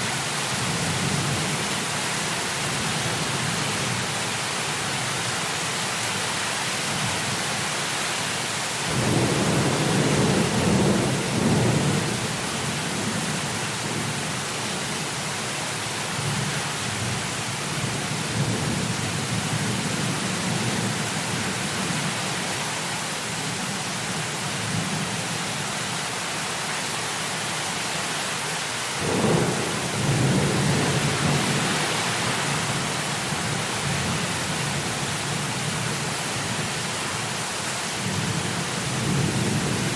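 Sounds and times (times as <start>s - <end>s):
heavy rain hissing: 0.0s - 39.9s
thunder rumbling: 8.9s - 12.4s, 29.0s - 34.2s.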